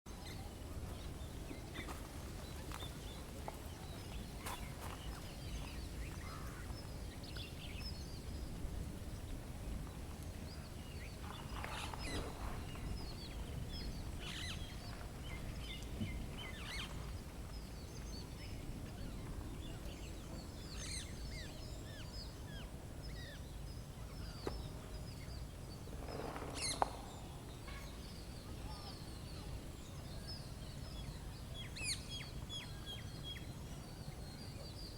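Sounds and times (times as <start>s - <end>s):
small birds chirping: 0.1s - 34.9s
loud bird calls: 1.6s - 7.2s, 20.4s - 34.2s.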